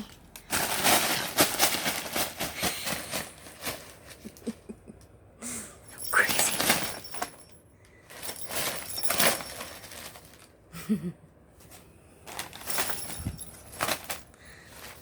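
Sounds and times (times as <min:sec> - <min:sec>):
packing paper crinkling: 0:00.4 - 0:04.1.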